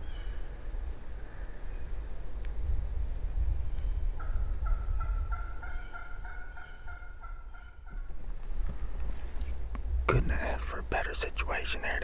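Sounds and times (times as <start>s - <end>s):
turkey hen yelping: 4.2s - 8.0s
low rumble: 8.1s - 11.1s.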